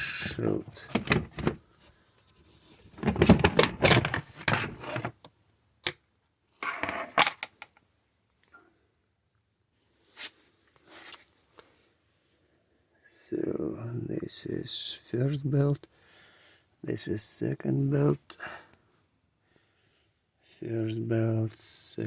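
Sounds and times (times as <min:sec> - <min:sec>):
plastic panel clattering and scraping: 0:00.2 - 0:01.6, 0:02.7 - 0:06.0, 0:06.6 - 0:07.7.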